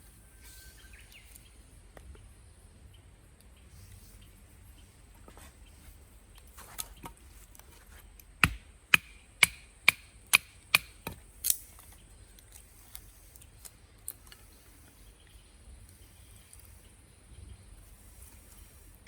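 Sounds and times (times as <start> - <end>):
axe chopping firewood: 8.4 - 11.8.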